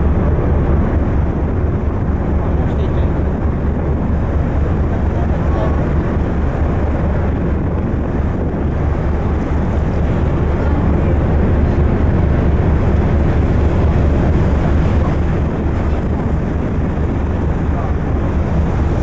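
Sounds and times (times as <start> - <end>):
low ship engine rumble: 0.0 - 19.0
water along hull: 0.0 - 19.0
wind buffeting microphone: 0.0 - 19.0.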